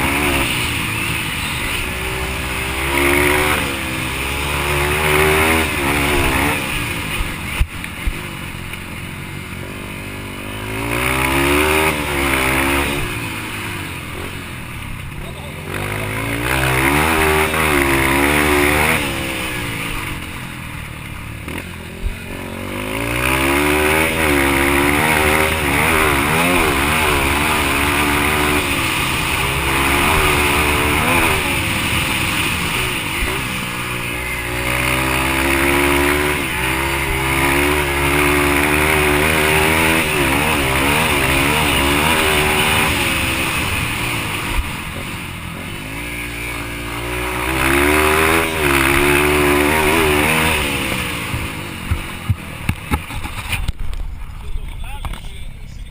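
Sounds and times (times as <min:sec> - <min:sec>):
dirt bike engine revving: 0:00.0 - 0:55.2.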